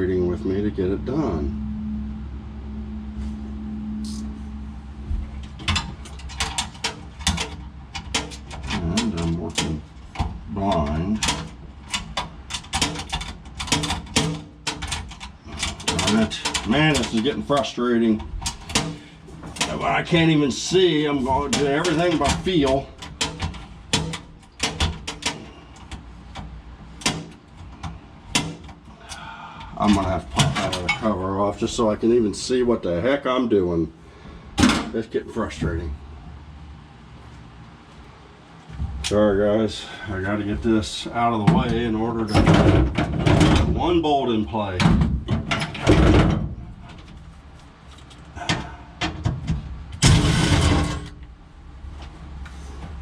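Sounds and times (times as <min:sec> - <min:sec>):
hand tools clicking on metal parts: 0:05.5 - 0:31.0.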